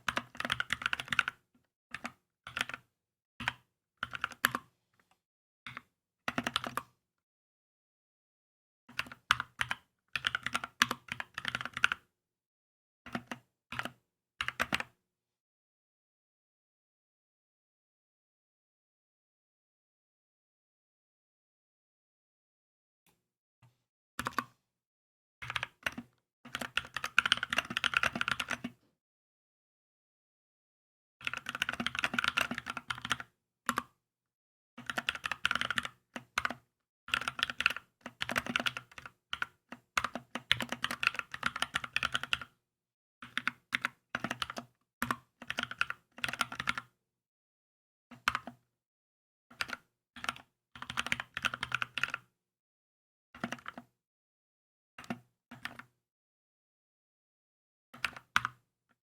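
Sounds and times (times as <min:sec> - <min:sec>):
typing on mechanical keyboard: 0:00.1 - 0:01.4, 0:02.0 - 0:02.8, 0:03.4 - 0:04.7, 0:05.7 - 0:06.9, 0:08.9 - 0:12.0, 0:13.1 - 0:14.8, 0:25.4 - 0:28.8, 0:31.2 - 0:34.0, 0:34.8 - 0:42.5, 0:43.2 - 0:46.9, 0:48.2 - 0:48.6, 0:49.6 - 0:52.3, 0:53.4 - 0:53.9, 0:58.0 - 0:58.6.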